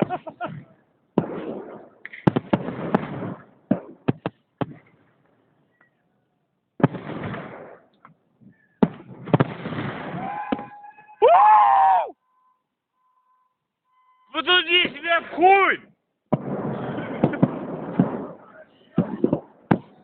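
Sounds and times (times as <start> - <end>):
firework shells bursting: 1.1 - 5.1, 16.3 - 20.0.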